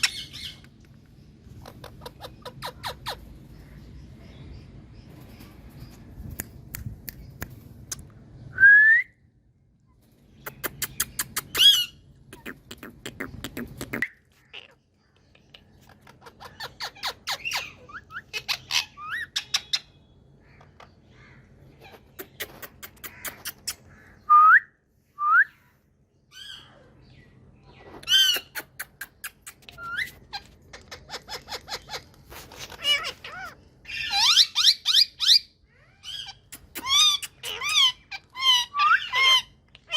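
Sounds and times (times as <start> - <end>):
parakeet squawking chatter: 1.4 - 3.8, 10.5 - 14.9, 15.5 - 19.9, 27.8 - 39.9
parakeet rapid clicks: 10.5 - 11.6.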